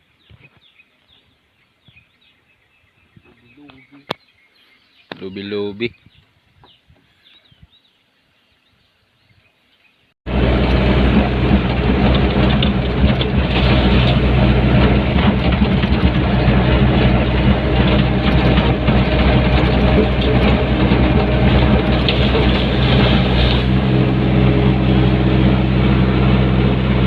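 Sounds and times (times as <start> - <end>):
faint bird chirps: 0.2 - 10.1
backhoe diesel engine running: 10.3 - 27.0.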